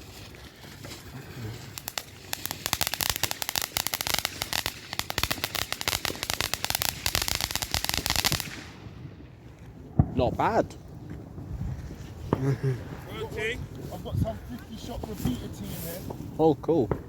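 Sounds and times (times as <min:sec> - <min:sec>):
firework crackling: 0:00.0 - 0:10.4.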